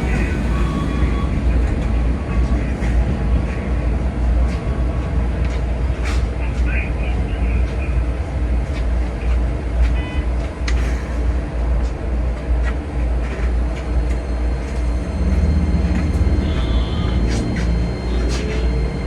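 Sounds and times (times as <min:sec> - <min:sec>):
train deep rumble: 0:00.0 - 0:19.0
steady hum: 0:13.0 - 0:19.0.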